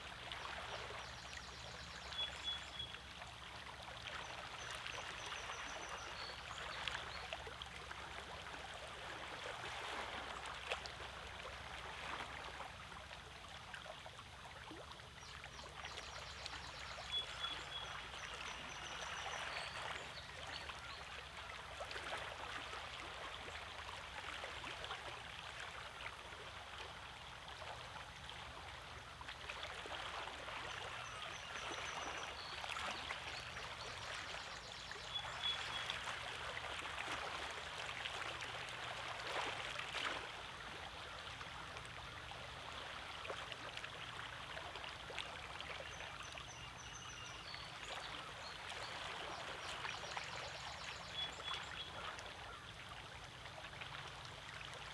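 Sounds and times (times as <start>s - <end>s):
small water splashes: 0.0s - 54.9s
water lapping among rocks: 7.7s - 13.7s, 18.8s - 45.6s.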